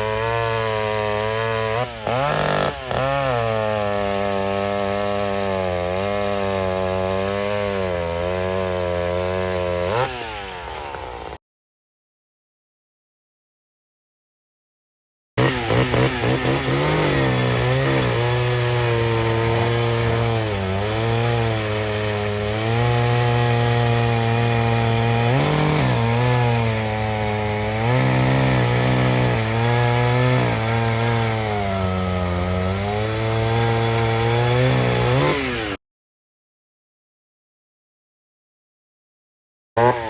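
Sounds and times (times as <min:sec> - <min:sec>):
chainsaw cutting wood: 0:00.0 - 0:11.4, 0:15.4 - 0:35.8, 0:39.8 - 0:40.0.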